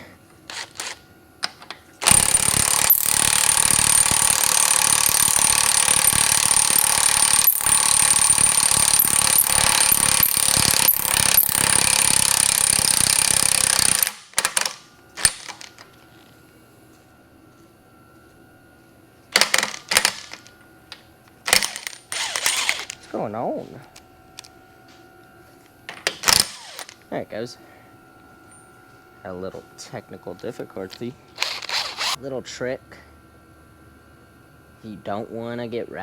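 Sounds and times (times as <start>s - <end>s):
impact wrench rattling: 2.0s - 15.7s, 21.5s - 23.0s, 26.0s - 27.0s.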